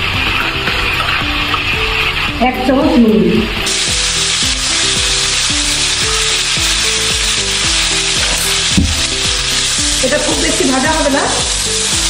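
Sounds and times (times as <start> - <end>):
tomatoes sizzling in oil: 0.0 - 12.0.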